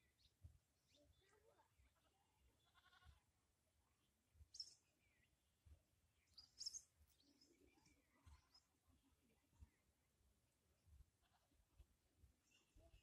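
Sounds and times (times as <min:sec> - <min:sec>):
faint bird chirps: 0:00.0 - 0:03.2, 0:03.9 - 0:05.5, 0:06.1 - 0:10.0, 0:12.4 - 0:13.0.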